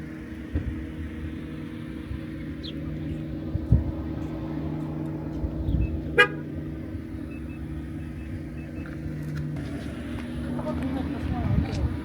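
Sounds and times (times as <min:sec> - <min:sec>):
vehicle engine running: 0:00.0 - 0:12.0
car horn beep: 0:06.1 - 0:06.5.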